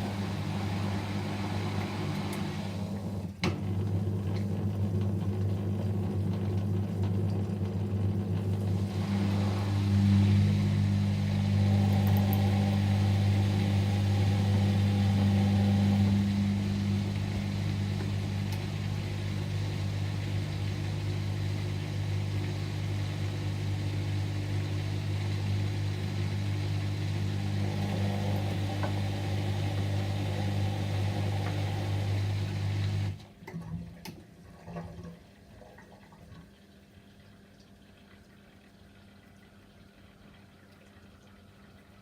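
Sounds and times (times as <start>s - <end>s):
washing machine humming: 0.0s - 42.0s
water splashing and trickling: 33.7s - 42.0s.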